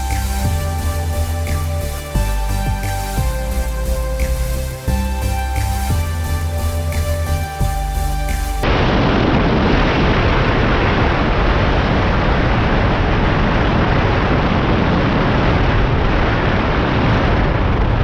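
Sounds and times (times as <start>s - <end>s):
wind buffeting microphone: 8.6s - 18.0s.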